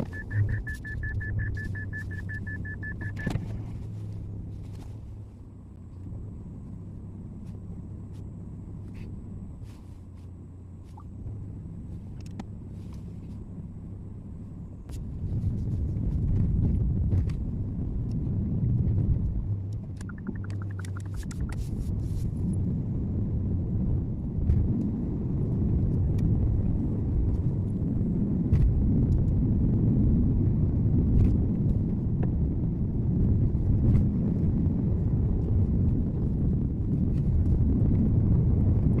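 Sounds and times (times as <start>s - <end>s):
car road and engine rumble: 0.0s - 39.0s
rapid ticks: 20.0s - 21.6s.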